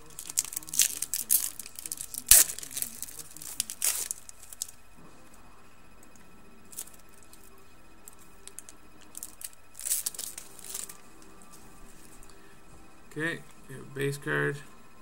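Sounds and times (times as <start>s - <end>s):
card pack wrapper crinkling and tearing: 0.0s - 4.8s, 6.7s - 7.5s, 8.4s - 11.0s.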